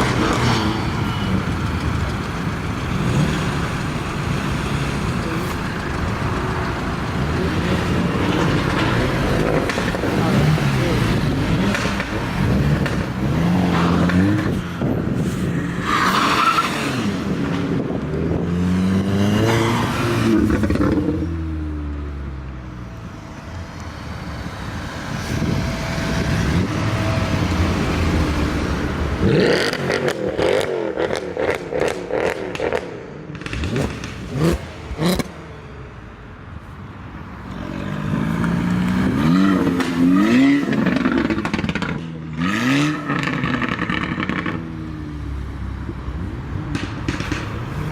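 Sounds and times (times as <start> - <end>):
car engine revving: 0.0 - 35.9
sharp exhaust cracks: 22.9 - 35.4.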